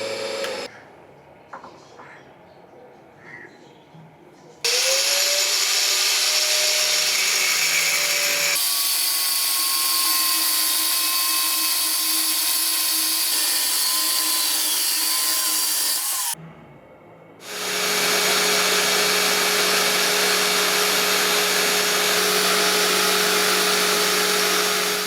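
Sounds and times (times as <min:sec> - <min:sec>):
electric power tool motor: 0:00.0 - 0:00.7, 0:04.7 - 0:16.4, 0:17.4 - 0:25.0.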